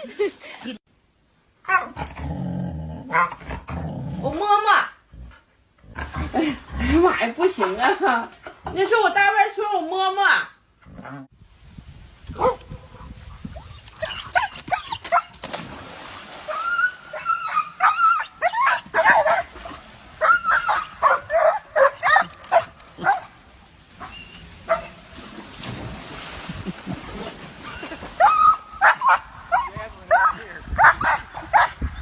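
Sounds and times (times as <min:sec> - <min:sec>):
dog whining and yipping: 0:13.6 - 0:15.3, 0:16.5 - 0:19.4, 0:27.6 - 0:30.3.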